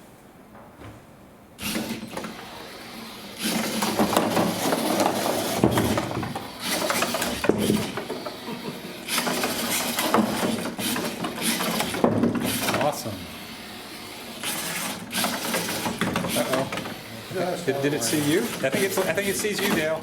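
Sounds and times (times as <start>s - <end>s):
robot electric motors running: 1.6s - 20.0s
rattling and knocks: 3.5s - 8.5s, 9.2s - 12.9s, 14.9s - 17.0s.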